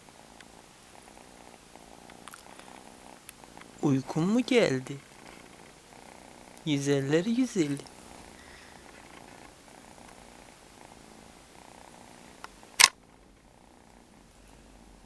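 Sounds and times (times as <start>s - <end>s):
cat purring: 0.0s - 15.0s
sharp click: 12.4s - 13.0s.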